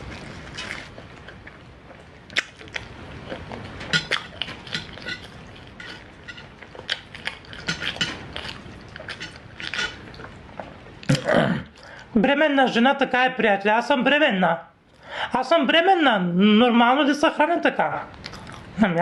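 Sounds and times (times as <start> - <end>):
cutlery and dishes clinking: 3.8 - 10.1.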